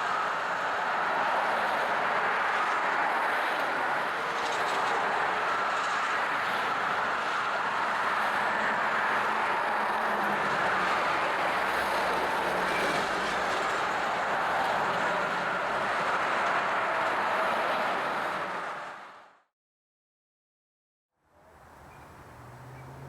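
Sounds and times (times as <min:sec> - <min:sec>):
train wheels rumbling on rail: 0:01.0 - 0:19.2.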